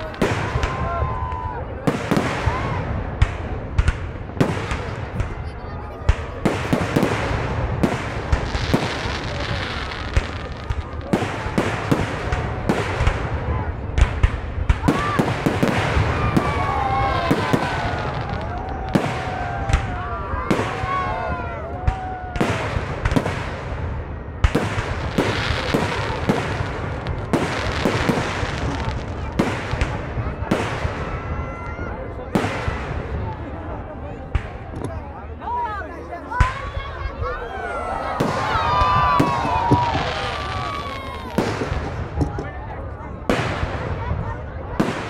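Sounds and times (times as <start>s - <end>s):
firecracker crackle: 0.0s - 34.7s, 38.1s - 45.0s
firework bangs and pops: 0.0s - 35.0s, 38.2s - 45.0s
sharp pops and bangs: 40.7s - 43.9s.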